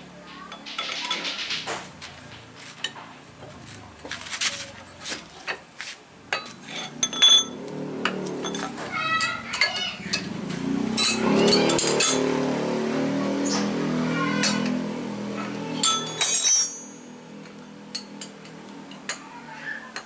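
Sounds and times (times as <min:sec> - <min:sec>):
metal tools clinking: 0:06.3 - 0:07.6, 0:08.2 - 0:10.4, 0:11.0 - 0:12.3, 0:15.8 - 0:17.1.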